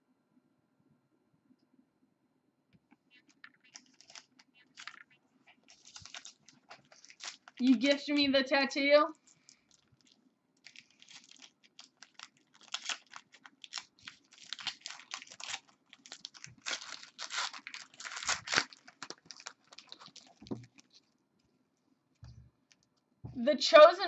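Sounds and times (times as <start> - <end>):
wrapper crinkling and tearing: 3.2 - 8.3, 9.1 - 21.1.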